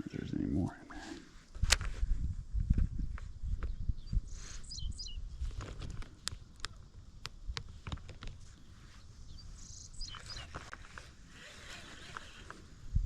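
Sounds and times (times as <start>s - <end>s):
bird chirping: 3.4s - 5.4s, 9.0s - 10.7s.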